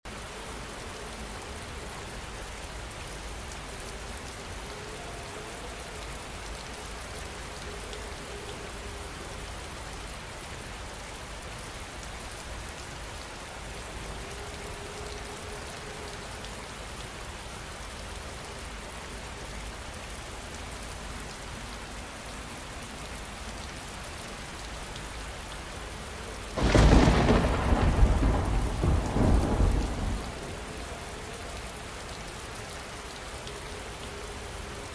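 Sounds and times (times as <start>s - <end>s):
rain falling: 0.1s - 34.9s
thunder clap rumbling: 26.6s - 31.0s.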